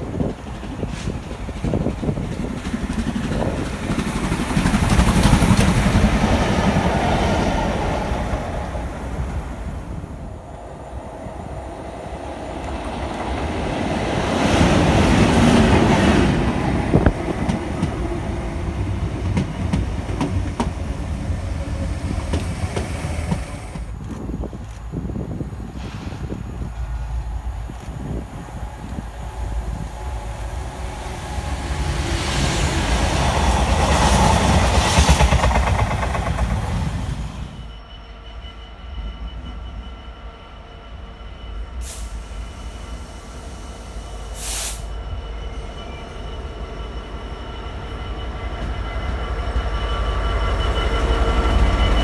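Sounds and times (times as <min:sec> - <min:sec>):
diesel locomotive approaching: 0:00.0 - 0:52.0
electric locomotive passing: 0:00.0 - 0:52.0
steam locomotive passing: 0:00.0 - 0:52.0.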